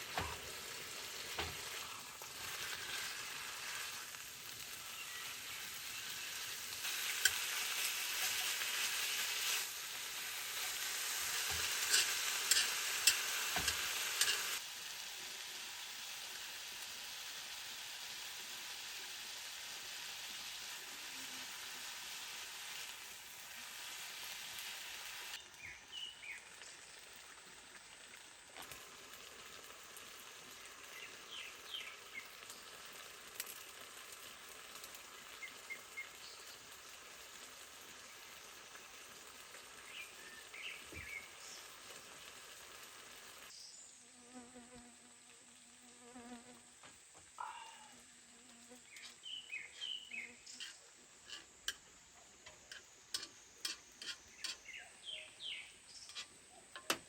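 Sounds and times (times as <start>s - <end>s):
steady hiss: 0.0s - 57.0s
small birds chirping: 4.1s - 8.6s, 25.4s - 27.0s, 30.5s - 33.0s, 34.3s - 37.0s, 39.6s - 42.2s, 48.8s - 56.8s.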